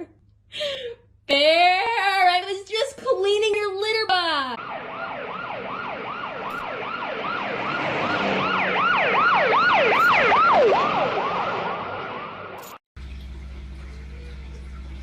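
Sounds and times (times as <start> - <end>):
siren yelping: 4.6 - 12.8.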